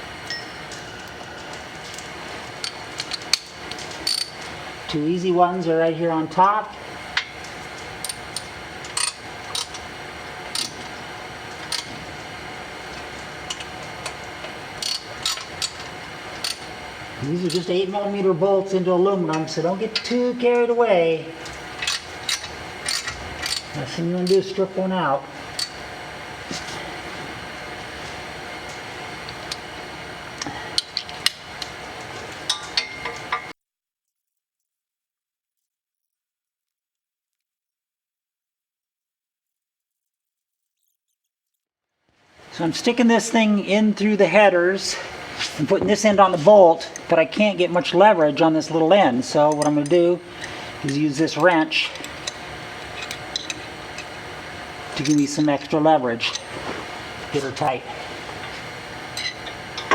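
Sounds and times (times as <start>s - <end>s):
metal tools clinking on steel: 21.8s - 24.5s, 55.0s - 56.7s, 59.2s - 59.9s
steady background hiss: 42.4s - 59.9s.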